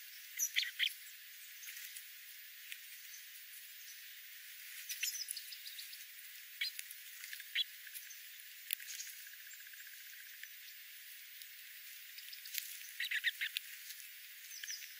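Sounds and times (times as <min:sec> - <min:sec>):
small birds chirping: 0:00.0 - 0:14.9
fast bird trill: 0:00.4 - 0:01.0, 0:12.3 - 0:13.6.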